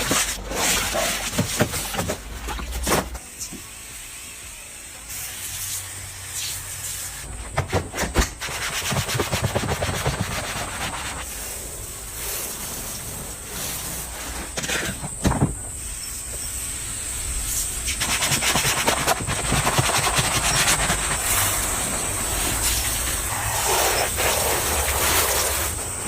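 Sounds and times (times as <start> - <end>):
sanding on car body: 8.4 - 11.5, 17.4 - 26.0.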